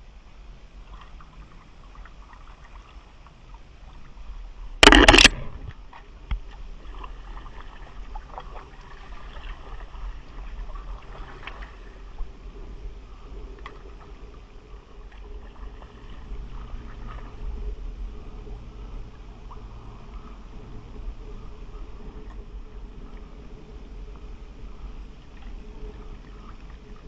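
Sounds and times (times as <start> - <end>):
sharp knock: 4.8 - 5.5
loud noise burst: 4.8 - 5.6.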